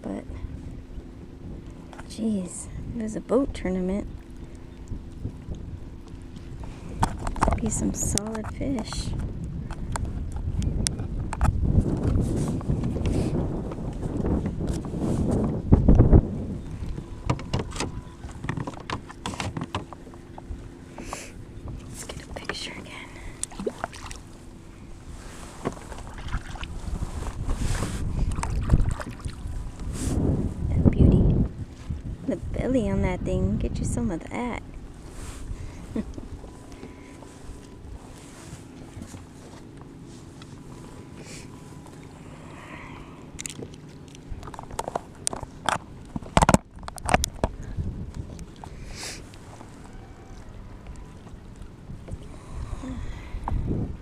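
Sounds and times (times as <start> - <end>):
water: 0.0 - 54.0
wind rumble on microphone: 0.0 - 54.0
clicks and knocks on a kayak: 6.9 - 16.1, 16.8 - 22.6, 43.4 - 48.8
gear knocking on a kayak: 15.7 - 22.8.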